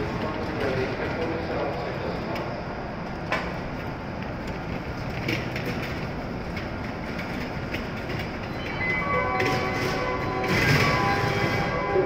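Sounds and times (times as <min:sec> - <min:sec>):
stationary train humming: 0:00.0 - 0:12.0.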